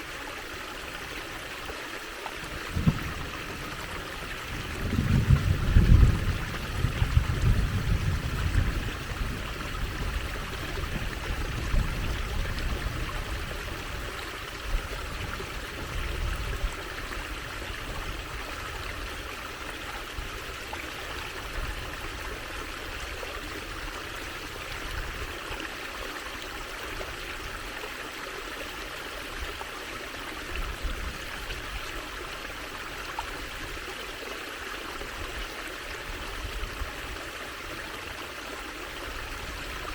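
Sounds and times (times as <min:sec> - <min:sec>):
water trickling over stones: 0:00.0 - 0:39.9
low rumbling gusts: 0:02.4 - 0:19.2.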